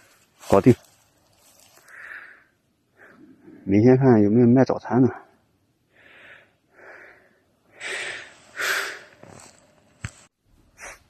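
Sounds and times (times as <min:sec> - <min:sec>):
man breathing: 0:01.6 - 0:03.6, 0:05.9 - 0:09.8.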